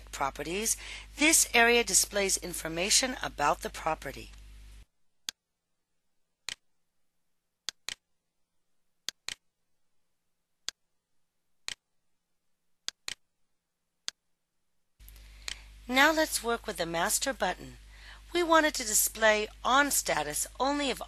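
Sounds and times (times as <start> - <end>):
computer mouse clicks: 6.4 - 6.6, 7.6 - 8.0, 9.0 - 9.4, 11.6 - 11.8, 12.8 - 13.2.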